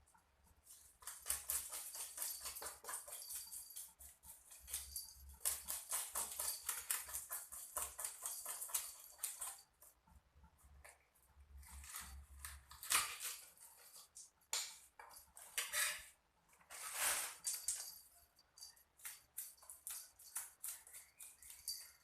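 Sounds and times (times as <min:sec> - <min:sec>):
utensils scraping a dish: 0:15.5 - 0:16.1.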